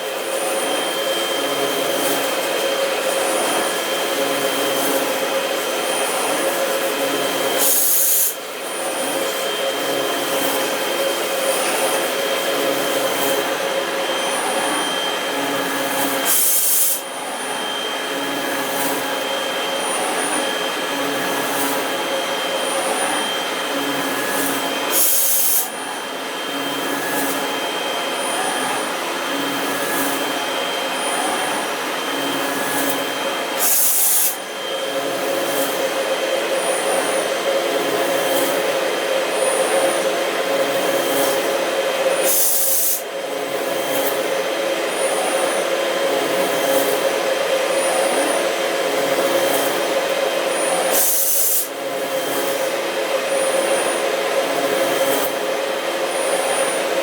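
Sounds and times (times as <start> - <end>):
milling machine cutting metal: 0.2 - 36.0, 42.1 - 43.1, 48.9 - 52.7.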